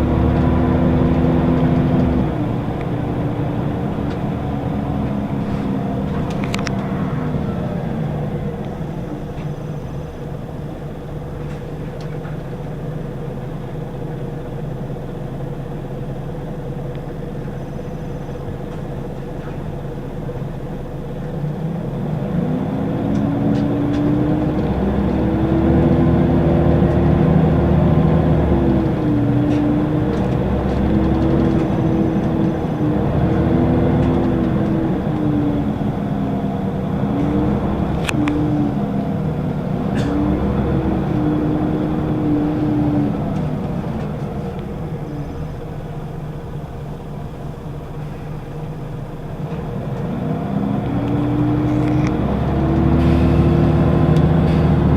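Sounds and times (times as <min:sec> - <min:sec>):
gearbox shifting up: 0:00.0 - 0:12.5, 0:23.0 - 0:54.9
bus engine revving: 0:00.0 - 0:54.9.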